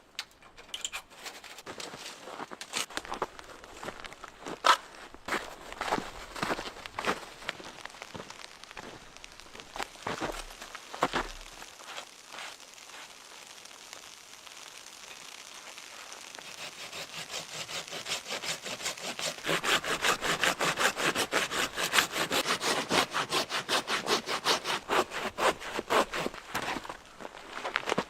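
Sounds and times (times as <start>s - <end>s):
saw cutting wood: 16.4s - 27.0s.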